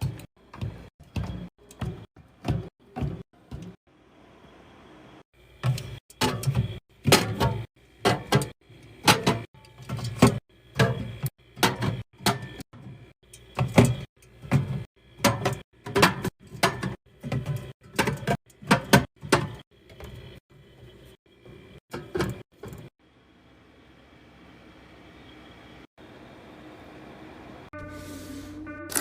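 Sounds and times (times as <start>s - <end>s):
items knocking and clattering: 5.6s - 20.4s.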